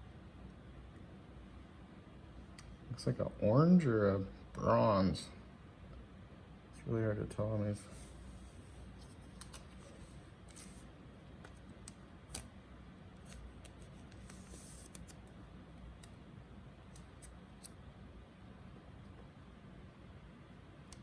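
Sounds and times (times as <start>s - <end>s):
trading cards and sleeves clicking: 9.2s - 9.8s, 11.4s - 12.5s.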